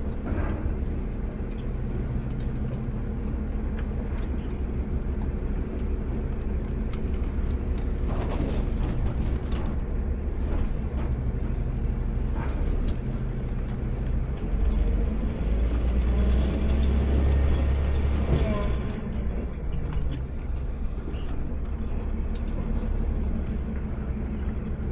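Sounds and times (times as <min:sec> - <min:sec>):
garbage truck engine humming: 0:00.0 - 0:24.9
knocks and clatter: 0:07.0 - 0:11.2.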